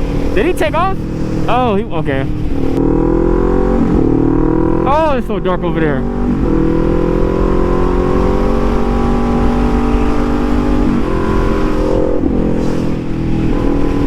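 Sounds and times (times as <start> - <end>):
wind rush: 0.0 - 5.2, 10.8 - 14.0
motorcycle engine running: 0.0 - 14.0.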